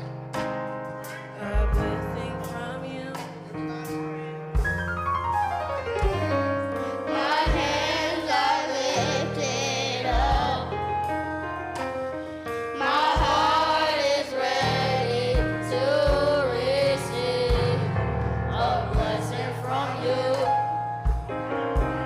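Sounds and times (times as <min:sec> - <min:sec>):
deep bass notes: 0:00.0 - 0:12.2, 0:12.8 - 0:22.0
keyboard chords: 0:00.0 - 0:22.0
voices singing: 0:06.9 - 0:10.9, 0:12.7 - 0:20.6.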